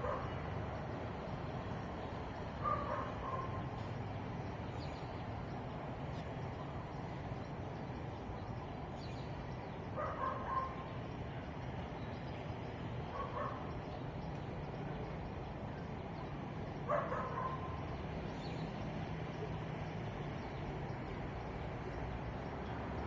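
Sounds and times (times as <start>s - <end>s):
dog barking: 2.6s - 3.6s, 10.0s - 10.8s, 13.1s - 13.6s, 16.9s - 17.8s.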